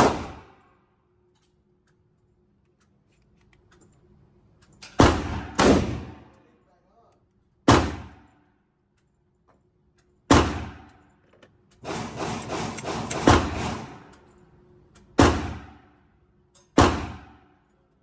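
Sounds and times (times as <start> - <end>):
gunshots with short echo: 0.0 - 0.6, 5.0 - 6.3, 11.8 - 14.1.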